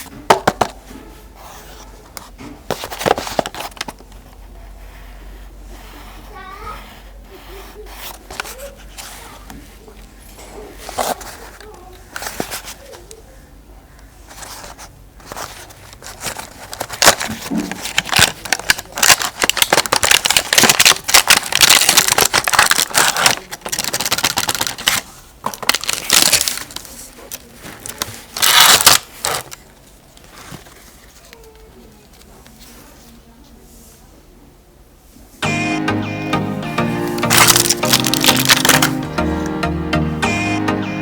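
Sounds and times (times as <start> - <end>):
packaging crinkling and tearing: 2.7 - 4.4, 10.8 - 13.0, 13.9 - 32.6, 37.1 - 39.2.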